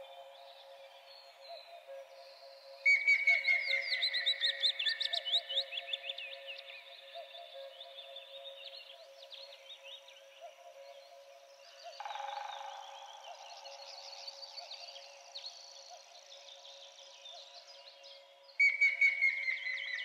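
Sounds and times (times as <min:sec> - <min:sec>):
faint steady tone: 0:00.0 - 0:20.0
songbirds chirping and twittering: 0:00.0 - 0:20.0
bird whistled call: 0:18.6 - 0:19.9.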